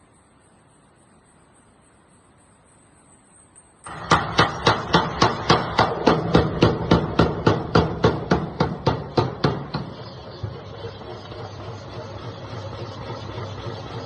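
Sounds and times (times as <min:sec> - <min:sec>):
power hammer striking: 0:03.8 - 0:14.0
drive motor hum: 0:05.9 - 0:14.0.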